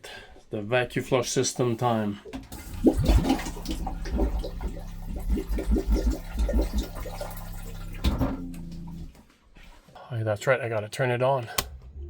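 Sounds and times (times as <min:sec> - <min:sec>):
water running into toilet bowl: 0:00.9 - 0:09.2
pump humming with rapid pulsing: 0:02.5 - 0:09.1
loud clunk: 0:08.0 - 0:09.2.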